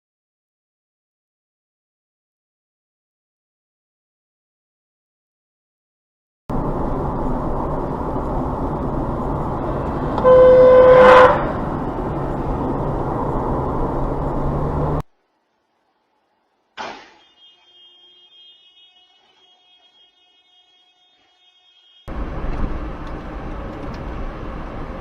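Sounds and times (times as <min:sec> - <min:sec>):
road and engine noise: 0:06.5 - 0:25.0
car horn honking: 0:10.2 - 0:11.6, 0:16.8 - 0:22.2
sharp knock: 0:16.8 - 0:17.2.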